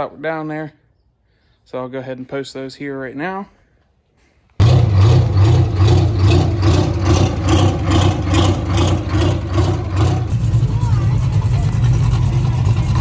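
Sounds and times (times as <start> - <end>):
vehicle engine idling: 4.6 - 13.0.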